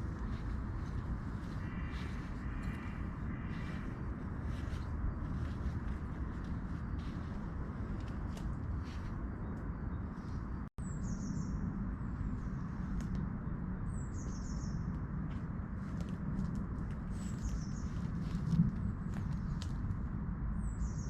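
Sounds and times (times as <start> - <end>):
songbird calling: 0.0 - 8.0, 8.9 - 11.6, 13.9 - 14.9, 17.1 - 18.2
low rushing outdoor ambience: 0.0 - 21.0.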